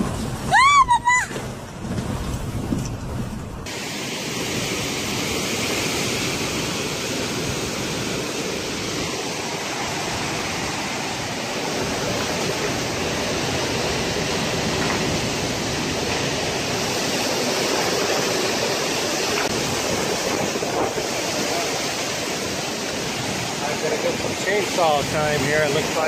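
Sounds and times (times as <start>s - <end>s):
storm wind blowing hard: 0.0s - 26.0s.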